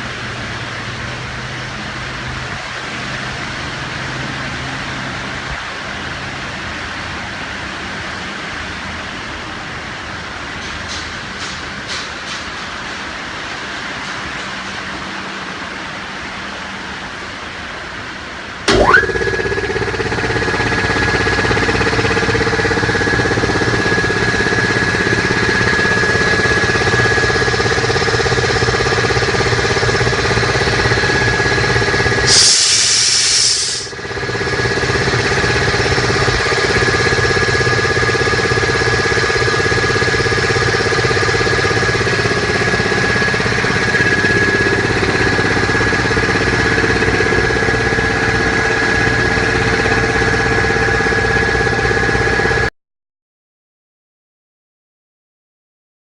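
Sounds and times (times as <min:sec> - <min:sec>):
air compressor running: 0:00.0 - 0:09.2, 0:18.6 - 0:52.7
hiss of air: 0:32.2 - 0:33.9.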